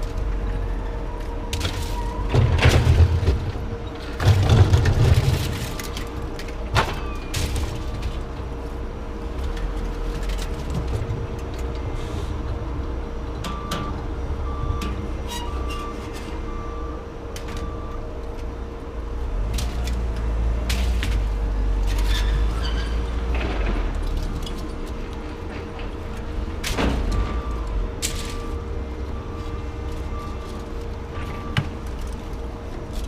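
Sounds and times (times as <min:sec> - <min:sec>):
vehicle engine rumbling: 0:00.0 - 0:33.0
knocks and clanks: 0:01.5 - 0:08.3.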